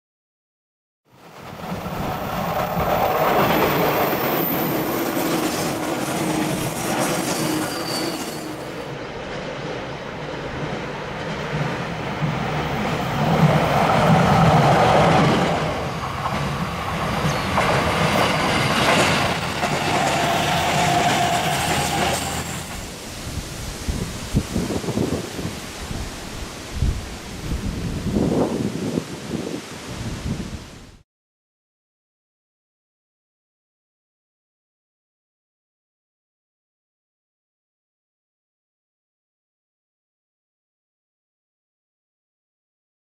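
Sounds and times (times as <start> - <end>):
train wheels on rails: 1.2 - 23.1.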